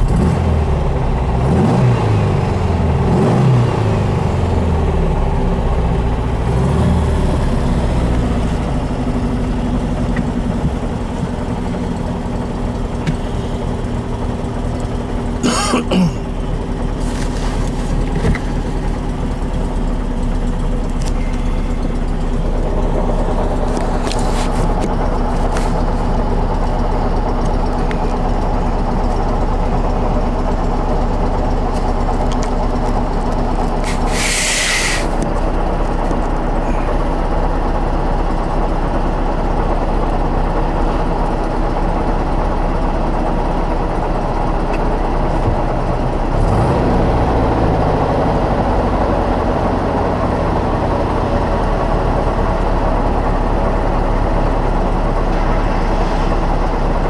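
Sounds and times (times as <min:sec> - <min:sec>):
car engine idling: 0:00.0 - 0:57.0
short hiss: 0:33.8 - 0:35.2.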